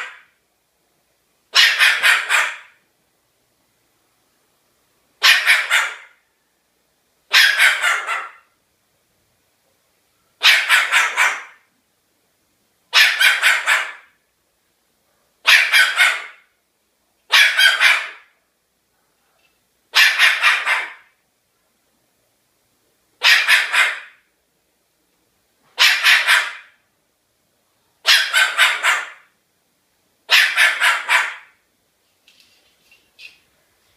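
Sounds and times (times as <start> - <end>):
cockatoo imitating dog bark: 0.0 - 0.3, 1.5 - 2.8, 5.2 - 6.2, 7.3 - 8.5, 10.4 - 11.7, 12.9 - 14.2, 15.4 - 16.5, 17.3 - 18.3, 19.9 - 21.2, 23.2 - 24.3, 25.7 - 26.8, 28.0 - 29.4, 30.3 - 31.6.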